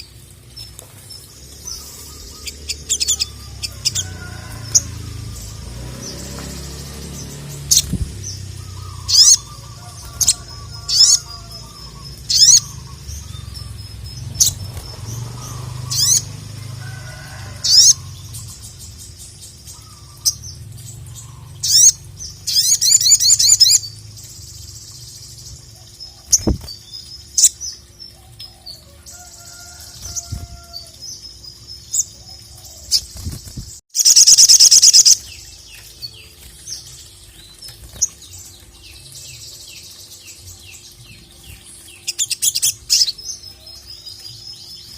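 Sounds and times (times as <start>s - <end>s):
songbird chirping: 0.0s - 44.9s.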